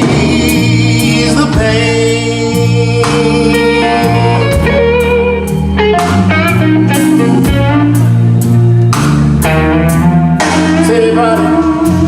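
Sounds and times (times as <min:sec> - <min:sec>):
person singing: 0:00.0 - 0:06.2, 0:10.4 - 0:12.0
bass: 0:00.0 - 0:12.0
drums striking a steady beat: 0:00.0 - 0:12.0
electric guitar fill: 0:00.0 - 0:12.0.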